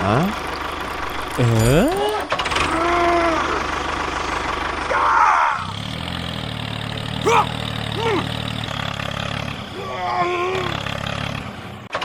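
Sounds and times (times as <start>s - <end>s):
small engine running: 0.0s - 12.0s
voice-like cry: 1.9s - 3.7s, 4.9s - 5.7s, 7.2s - 8.3s, 9.8s - 10.8s
rising-and-falling calls: 4.9s - 5.8s.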